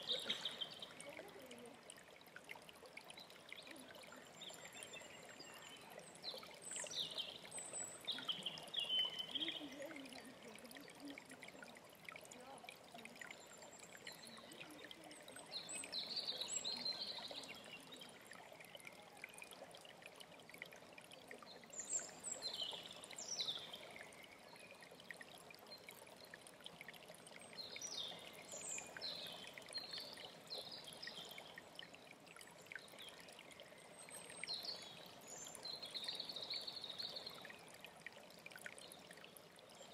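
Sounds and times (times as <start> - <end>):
songbird singing: 0.0 - 1.6, 3.1 - 19.6, 21.4 - 25.0, 27.4 - 31.8, 32.6 - 37.9
stream trickling: 0.0 - 39.9.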